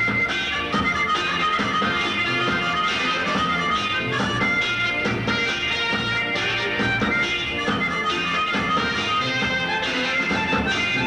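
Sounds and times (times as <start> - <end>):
instrumental ensemble music: 0.0 - 11.0.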